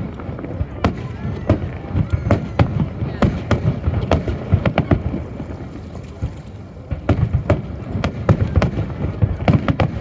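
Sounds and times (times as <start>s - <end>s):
fireworks bursting: 0.0s - 10.0s.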